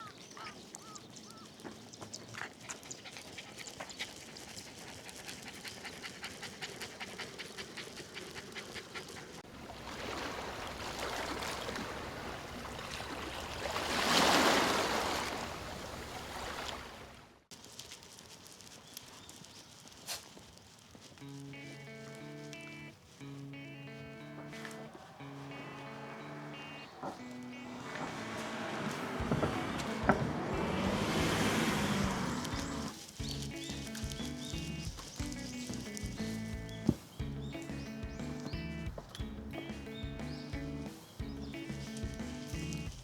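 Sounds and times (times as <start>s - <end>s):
dog panting: 0.1s - 9.5s, 19.3s - 39.2s.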